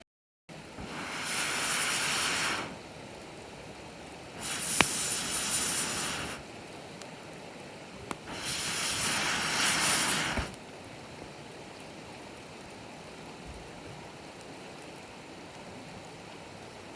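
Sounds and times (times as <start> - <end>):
whooshing gusts of air: 0.6 - 2.8, 4.3 - 6.4, 8.2 - 10.6
burning wood popping: 0.8 - 11.0.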